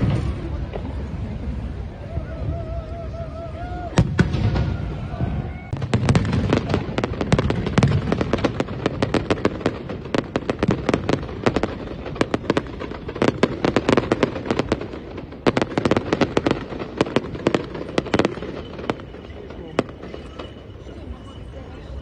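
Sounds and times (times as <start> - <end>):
fireworks crackling and popping: 0.0 - 3.0, 3.7 - 22.0
deep firework booms: 3.9 - 19.2.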